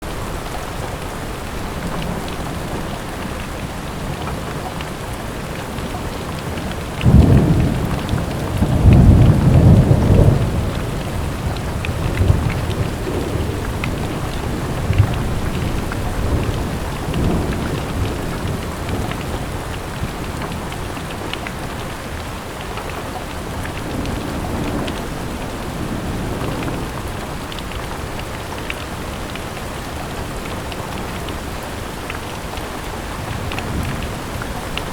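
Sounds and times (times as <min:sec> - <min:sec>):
steady rain falling: 0:00.0 - 0:34.9
thunder rumbling: 0:01.6 - 0:22.2.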